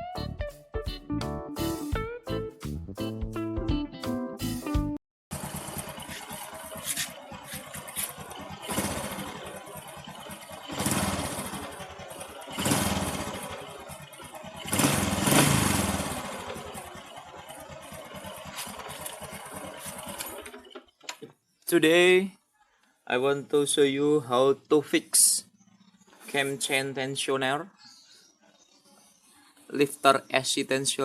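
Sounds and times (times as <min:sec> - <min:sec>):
engine revving: 0:05.3 - 0:20.8
engine ticking rattle: 0:05.3 - 0:21.2
motorcycle engine idling: 0:05.3 - 0:21.4, 0:25.4 - 0:26.8.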